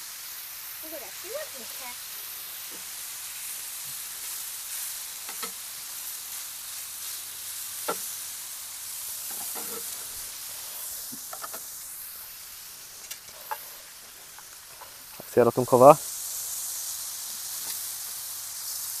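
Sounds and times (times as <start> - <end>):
chicken sizzling on griddle: 0.0 - 19.0
metal spatula scraping and tapping: 9.3 - 10.0.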